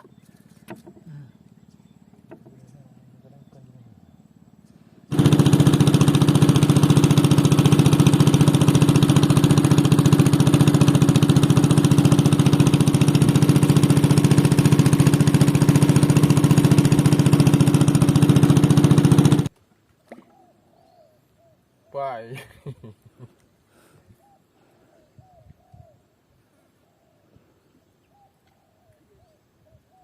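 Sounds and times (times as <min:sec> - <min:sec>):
engine running steadily: 0:04.4 - 0:19.5.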